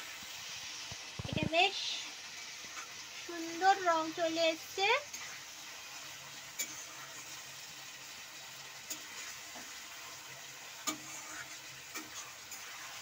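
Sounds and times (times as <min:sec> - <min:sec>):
vegetables sizzling in sauce: 0:00.0 - 0:13.0
metal spatula scraping pan: 0:05.1 - 0:05.5, 0:06.5 - 0:07.5, 0:08.8 - 0:13.0.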